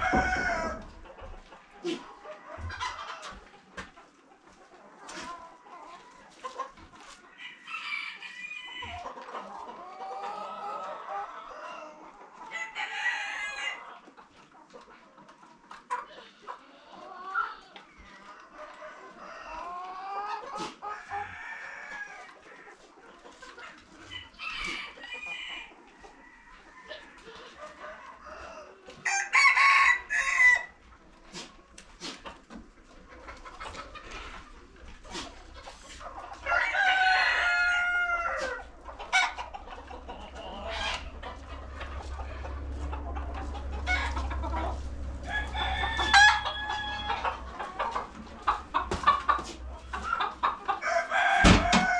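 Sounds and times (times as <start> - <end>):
rooster crowing: 0.0 - 0.9, 29.0 - 30.7, 36.4 - 38.6, 43.8 - 47.6, 50.8 - 51.9
chickens clucking: 0.0 - 51.9.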